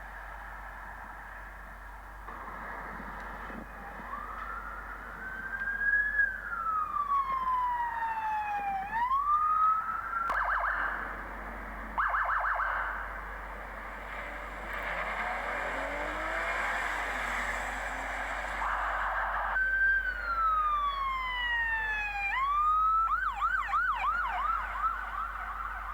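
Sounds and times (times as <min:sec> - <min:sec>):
faint siren tones: 0:00.0 - 0:25.9
police siren wailing and warbling: 0:03.6 - 0:13.5, 0:15.1 - 0:25.9
traffic hiss: 0:12.9 - 0:19.6.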